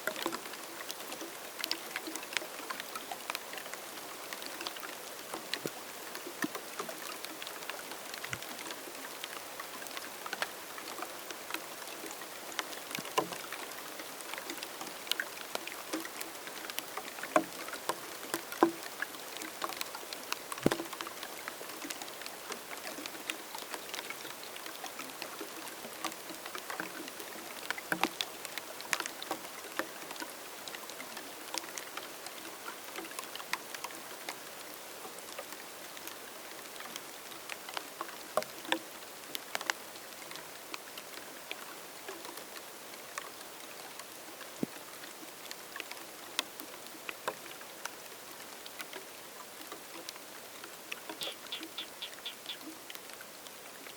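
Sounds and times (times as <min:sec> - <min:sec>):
raindrops striking: 0:20.4 - 0:21.4, 0:50.9 - 0:53.1.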